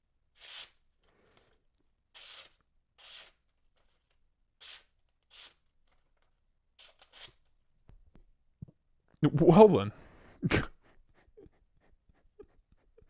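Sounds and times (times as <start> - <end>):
knife blade scratching strokes: 0.4 - 0.8.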